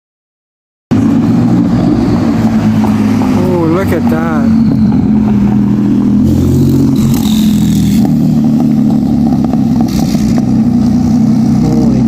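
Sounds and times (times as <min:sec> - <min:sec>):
car engine and exhaust: 0:00.9 - 0:12.0.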